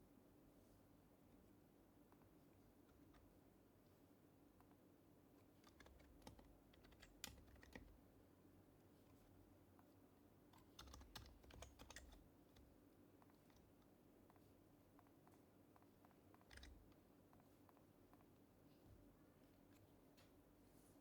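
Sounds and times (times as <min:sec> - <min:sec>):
quiet keyboard typing: 0:04.6 - 0:20.5.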